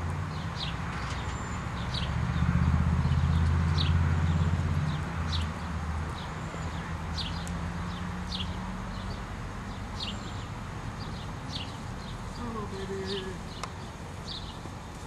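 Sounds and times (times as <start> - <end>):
bird chirping: 3.0 - 14.6.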